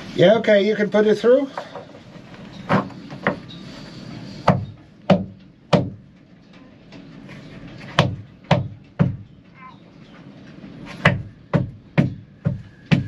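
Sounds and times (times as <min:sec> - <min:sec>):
sharp knocks: 0:04.4 - 0:06.0, 0:08.0 - 0:09.3, 0:11.0 - 0:13.0.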